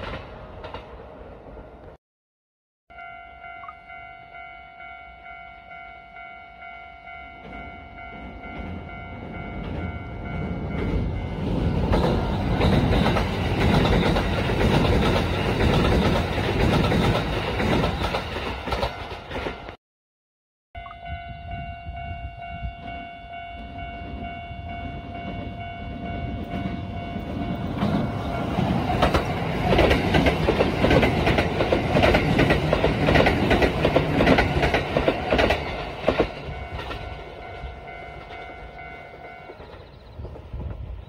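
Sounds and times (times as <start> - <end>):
train passing close by: 0.0 - 2.0, 2.9 - 19.8, 21.0 - 41.0
wheels clicking over rail joints: 26.4 - 37.1.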